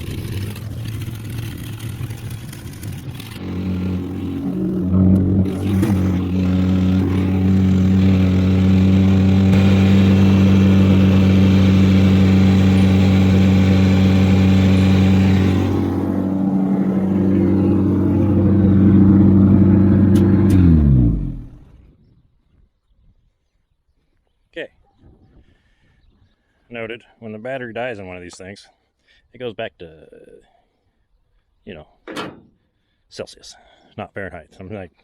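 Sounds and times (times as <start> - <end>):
car engine running: 0.0 - 21.8
engine switching off: 0.0 - 21.8.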